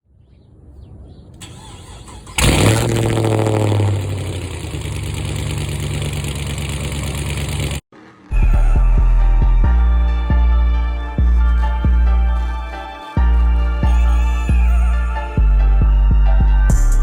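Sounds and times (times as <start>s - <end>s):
car engine starting and idling: 1.4s - 7.9s
music with heavy bass beat: 8.3s - 12.6s, 13.2s - 17.0s.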